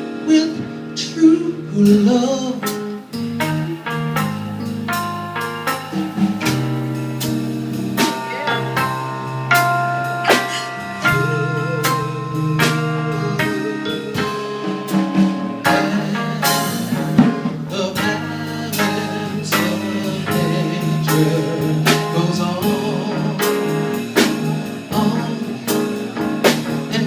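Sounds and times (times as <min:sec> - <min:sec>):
live band playing ballad: 0:00.0 - 0:27.0
person singing wordless vocal: 0:10.2 - 0:14.8, 0:15.7 - 0:23.8, 0:24.7 - 0:26.0.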